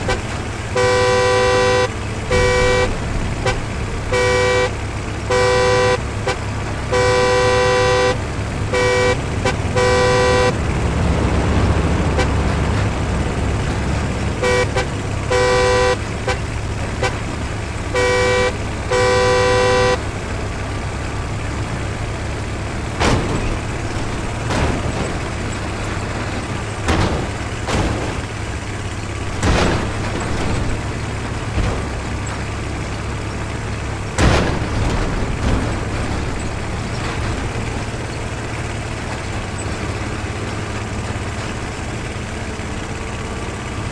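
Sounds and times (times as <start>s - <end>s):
two-tone vehicle horn honking: 0.0s - 10.6s, 12.0s - 12.6s, 14.3s - 21.0s
low engine rumble: 0.0s - 43.9s
sharp knocks: 22.7s - 38.0s.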